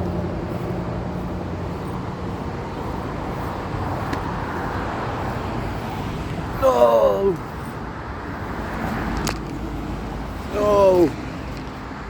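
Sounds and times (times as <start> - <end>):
tyre and road noise: 0.0 - 12.0
vehicle engine hum: 0.0 - 12.0.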